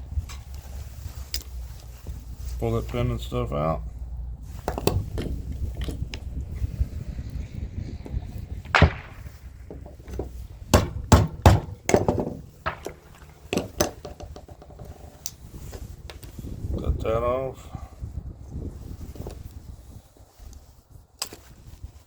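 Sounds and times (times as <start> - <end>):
hand tools knocking on parts: 8.8 - 15.3.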